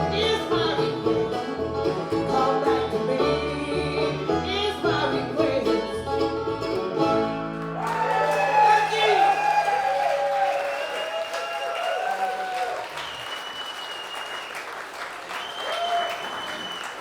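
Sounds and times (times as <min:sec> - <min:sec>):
banjo picking: 0:00.0 - 0:08.2
bluegrass band playing: 0:00.0 - 0:09.1.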